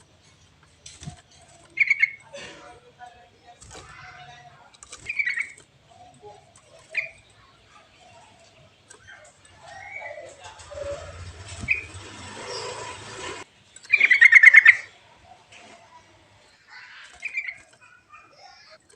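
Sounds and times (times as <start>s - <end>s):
songbird chirping: 0.0s - 18.9s.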